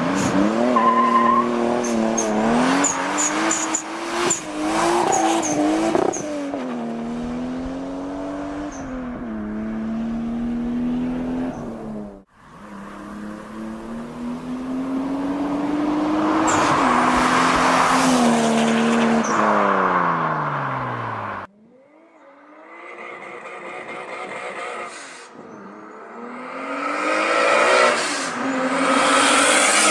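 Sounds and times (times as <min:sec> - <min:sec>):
car engine accelerating hard: 0:00.0 - 0:21.5.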